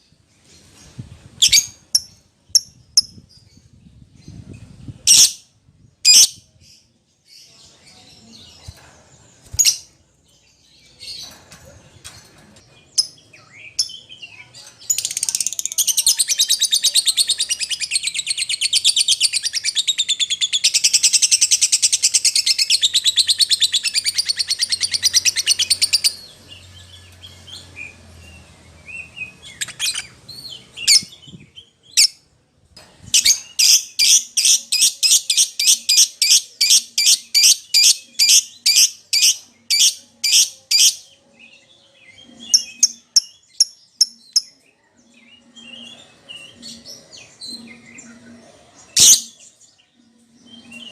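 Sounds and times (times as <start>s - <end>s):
lovebird chirps: 33.2s - 41.0s.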